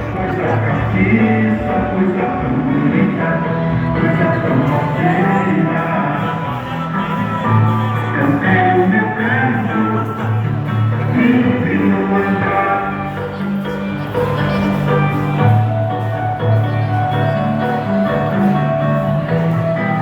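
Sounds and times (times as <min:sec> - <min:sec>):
live band instrumental music: 0:00.0 - 0:20.0.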